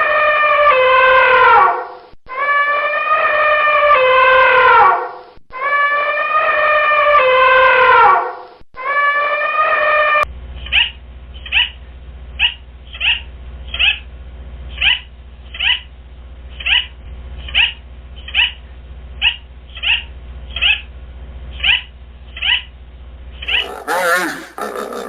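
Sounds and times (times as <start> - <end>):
animal chirping calls: 23.5 - 25.0.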